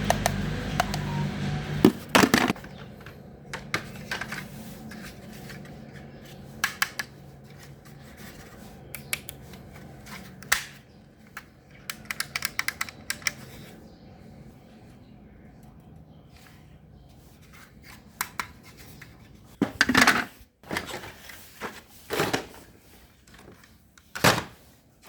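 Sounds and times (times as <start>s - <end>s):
small fan motor hum: 0.0s - 17.5s.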